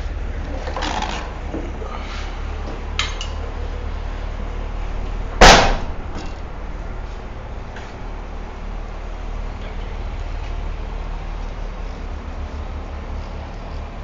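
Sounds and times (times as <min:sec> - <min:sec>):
steady low rumble: 0:01.2 - 0:14.0
light metallic clanks: 0:03.0 - 0:03.4, 0:05.4 - 0:06.5
loud metallic bang: 0:05.4 - 0:06.8.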